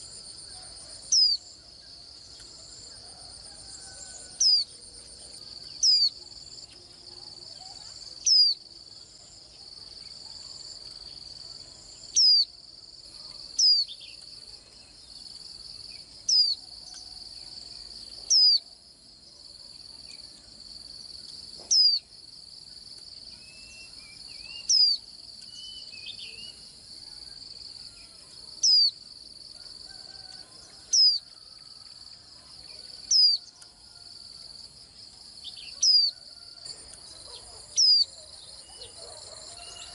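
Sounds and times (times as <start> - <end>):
bird chirping: 0.0 - 1.6, 4.0 - 6.8, 23.4 - 26.6, 35.4 - 39.9.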